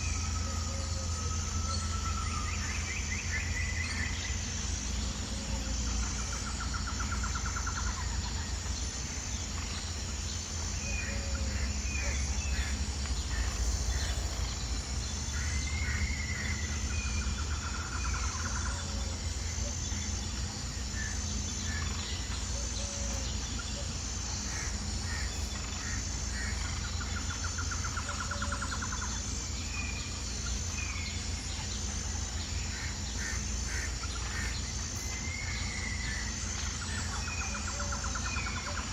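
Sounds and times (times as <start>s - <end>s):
high pulsing buzz: 0.0s - 38.9s.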